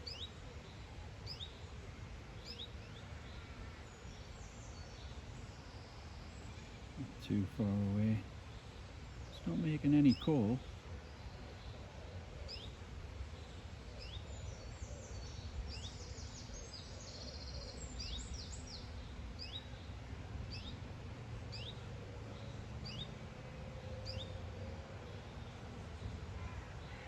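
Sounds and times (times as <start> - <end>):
rapid bird song: 0.0 - 27.0.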